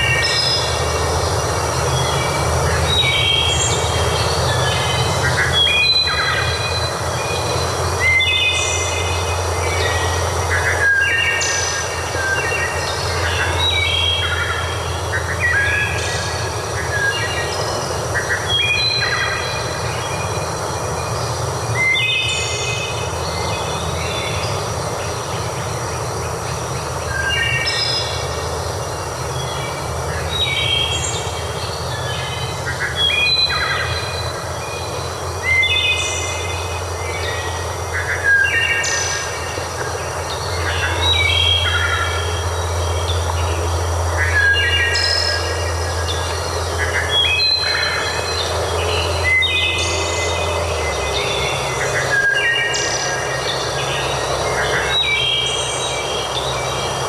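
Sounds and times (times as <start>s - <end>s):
birds calling: 0.0s - 57.0s
continuous hiss: 0.0s - 57.0s
steady low rumble: 0.0s - 57.0s.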